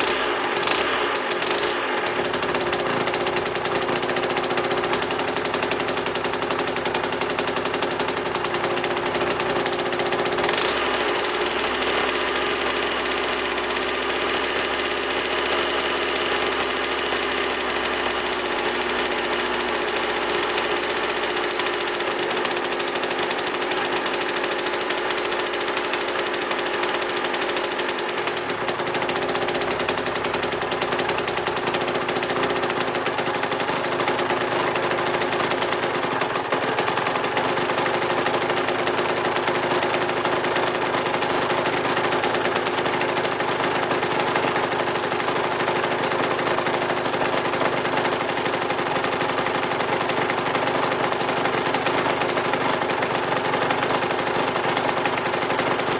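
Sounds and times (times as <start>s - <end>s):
two-stroke engine running: 0.0s - 55.9s.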